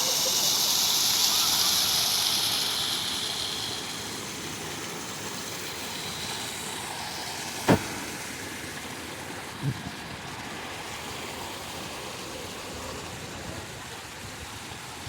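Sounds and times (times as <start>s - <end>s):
sharp knock: 7.7s - 8.0s.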